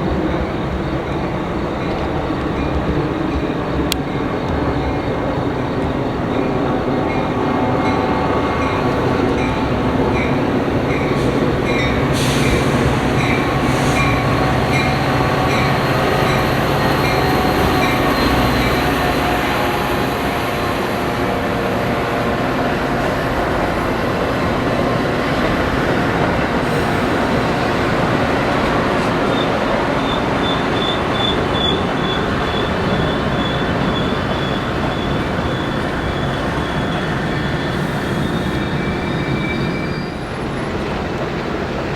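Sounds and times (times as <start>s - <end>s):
train wheels rumbling on rails: 0.0s - 41.9s
high wheel squeal: 29.0s - 40.9s.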